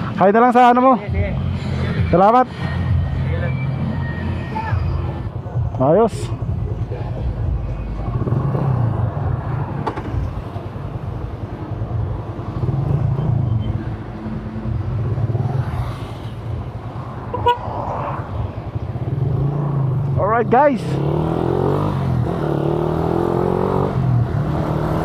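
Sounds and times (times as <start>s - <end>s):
motorcycle engine revving: 8.0s - 9.3s, 19.0s - 25.0s
vehicle horn: 17.3s - 17.7s.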